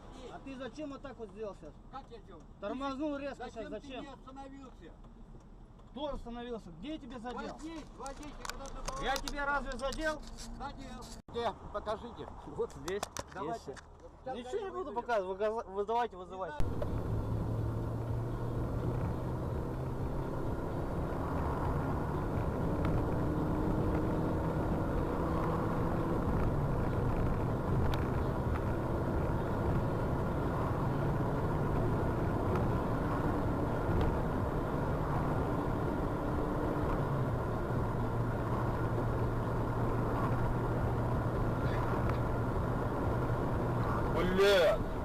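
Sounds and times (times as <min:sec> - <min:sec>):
road noise: 0:00.0 - 0:45.0
car engine running: 0:16.6 - 0:45.0.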